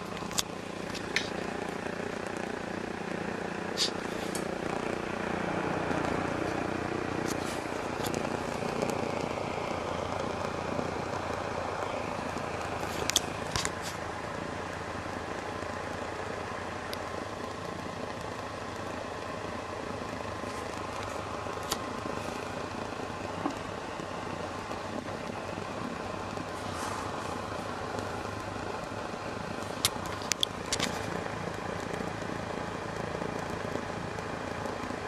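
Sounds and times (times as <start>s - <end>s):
burner jet flame rushing: 0.0s - 35.0s
sharp clicks: 5.8s - 14.1s, 29.5s - 35.0s.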